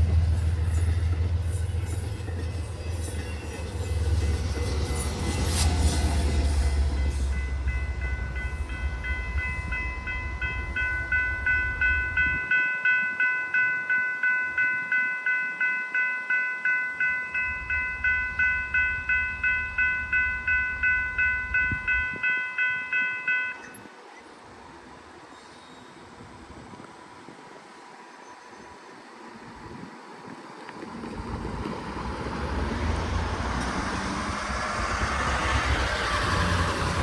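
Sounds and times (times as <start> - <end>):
crossing bell ringing: 0.0 - 23.9, 32.1 - 37.0
train rumbling past: 0.0 - 37.0.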